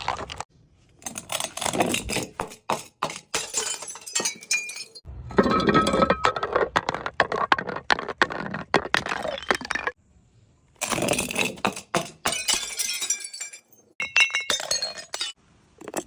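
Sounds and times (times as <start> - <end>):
brittle material crushing: 0.0 - 0.5
glassy clinks: 2.8 - 6.0.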